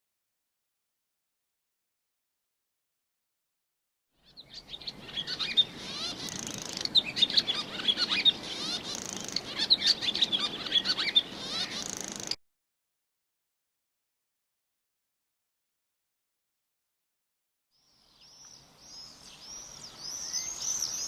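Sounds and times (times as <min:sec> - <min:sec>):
songbird singing: 0:04.2 - 0:12.4, 0:17.8 - 0:21.0.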